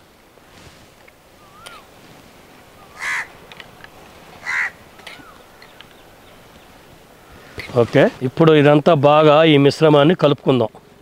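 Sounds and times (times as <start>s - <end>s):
bird harsh calls: 1.4s - 1.9s, 2.7s - 3.5s, 4.3s - 7.8s
faint bird chirps: 1.4s - 1.9s.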